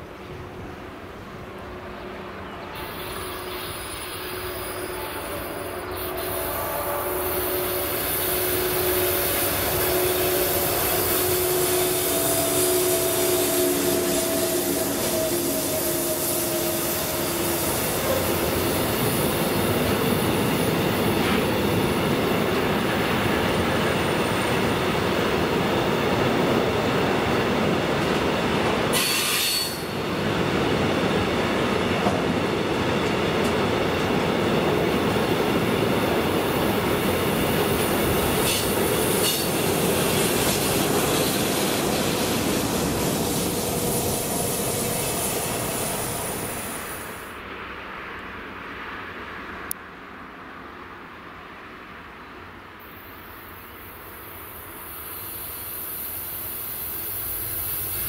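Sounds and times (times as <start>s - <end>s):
locomotive whine: 0.0s - 47.5s
freight train wheels rolling: 2.7s - 47.4s
brief hiss: 28.9s - 30.0s.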